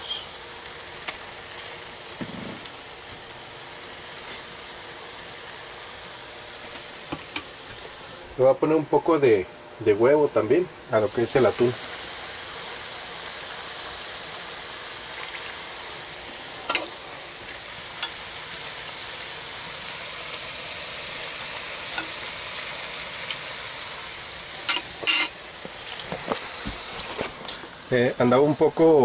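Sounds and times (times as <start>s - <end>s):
egg sizzling in a pan: 0.0s - 8.3s, 10.9s - 29.0s.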